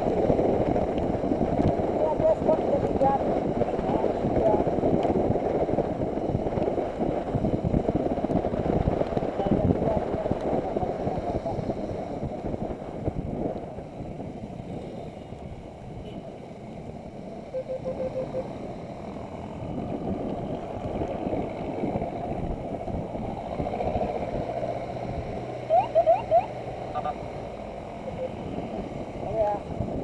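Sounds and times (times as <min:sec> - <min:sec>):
wind and rain buffeting microphone: 0:00.0 - 0:17.5, 0:18.5 - 0:30.0
short beeps: 0:17.5 - 0:18.6, 0:25.7 - 0:26.5, 0:28.0 - 0:28.6
short rising chirps: 0:17.6 - 0:18.5.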